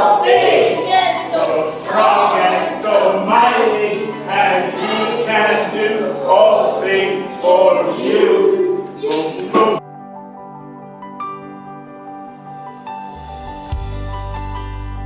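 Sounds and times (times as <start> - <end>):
choir singing: 0.0 - 9.8.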